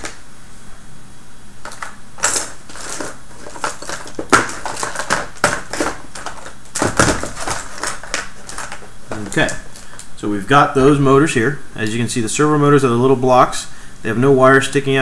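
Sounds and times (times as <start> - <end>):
plastic parts clicking and rattling: 1.6 - 10.1.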